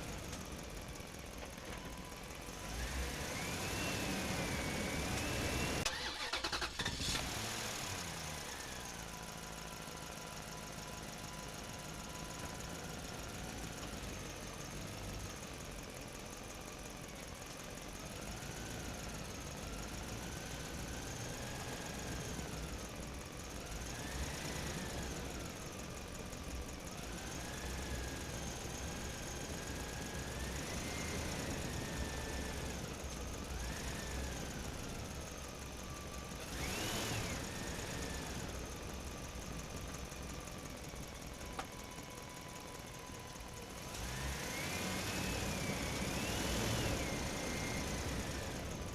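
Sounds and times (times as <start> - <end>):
engine revving with whine: 1.8 - 9.8, 23.5 - 25.6, 26.9 - 39.9, 43.3 - 48.9.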